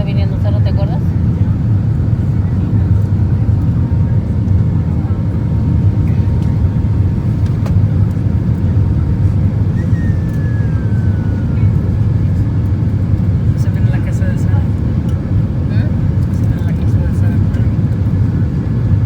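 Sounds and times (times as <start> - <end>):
jet engine rumble in cabin: 0.0 - 19.0
faint whistle falling in pitch: 9.7 - 11.6.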